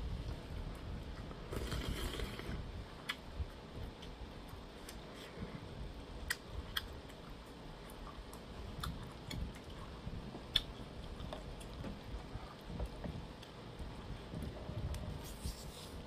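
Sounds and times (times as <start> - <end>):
person chewing food: 6.2 - 15.7.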